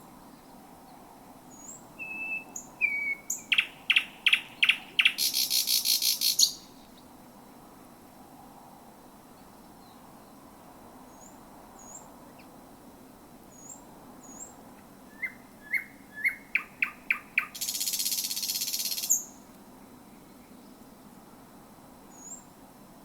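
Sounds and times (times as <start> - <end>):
bird singing: 1.5 - 7.1, 13.5 - 19.4, 22.1 - 22.5.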